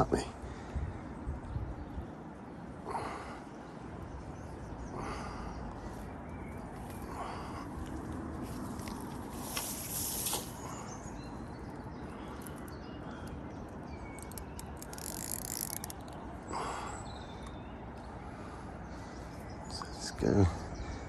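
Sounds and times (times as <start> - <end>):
fishing reel clicking: 14.2 - 16.2.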